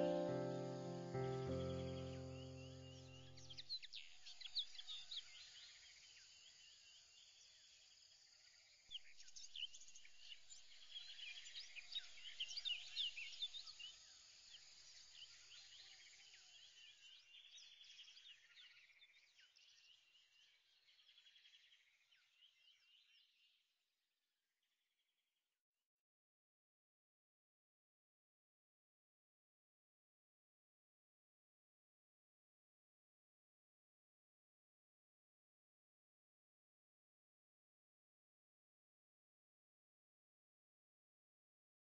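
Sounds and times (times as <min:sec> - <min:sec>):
small birds chirping: 0:00.0 - 0:23.6.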